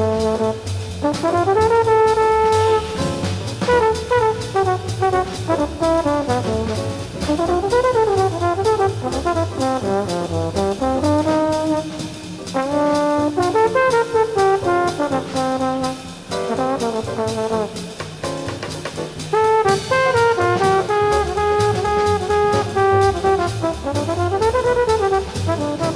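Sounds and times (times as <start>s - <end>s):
double bass: 0.0s - 25.9s
drums and cymbal strokes: 0.0s - 25.9s
piano: 0.0s - 25.9s
trombone solo: 0.0s - 25.9s.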